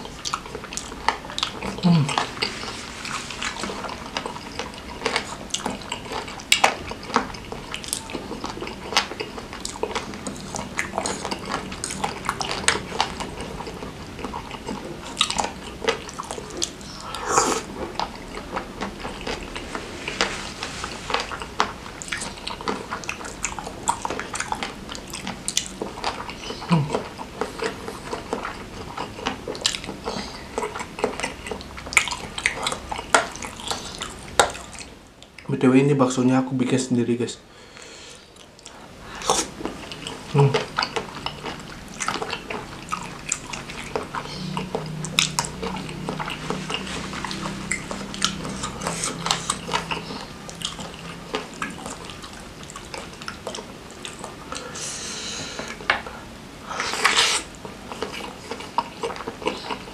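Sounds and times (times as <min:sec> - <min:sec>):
wet chewing mouth sounds: 0:00.0 - 0:35.5, 0:37.8 - 0:59.9
loud bite: 0:14.7 - 0:18.1.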